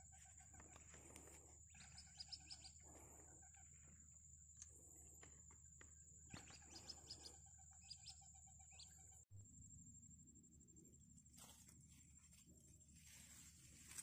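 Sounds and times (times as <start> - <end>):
faint bird chirps: 0.0 - 13.6
low hum: 0.0 - 14.0
steady high whine: 8.8 - 14.0.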